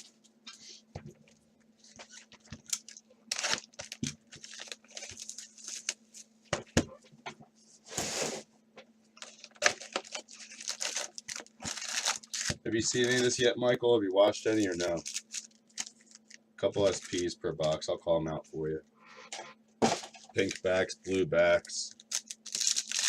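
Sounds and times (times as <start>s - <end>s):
foil wrappers crinkling and tearing: 1.8s - 6.2s, 9.2s - 13.5s, 14.2s - 17.8s, 20.3s - 23.0s.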